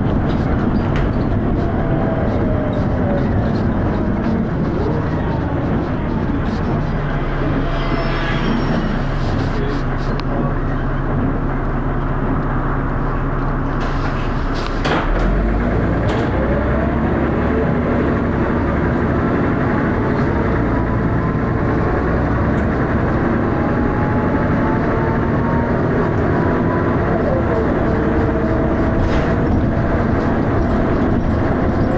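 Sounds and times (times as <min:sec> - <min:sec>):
bus diesel engine: 0:00.0 - 0:31.9.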